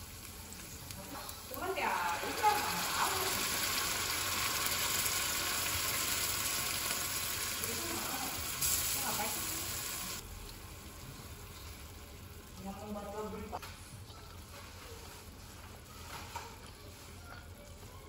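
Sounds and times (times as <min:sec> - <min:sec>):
fish sizzling in a frying pan: 0:00.0 - 0:13.6.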